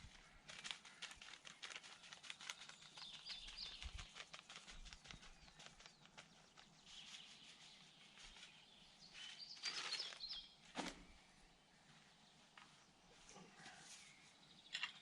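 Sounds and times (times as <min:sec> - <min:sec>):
soft rustling clicks: 0:00.0 - 0:08.6
faint bird chirps: 0:02.3 - 0:15.0.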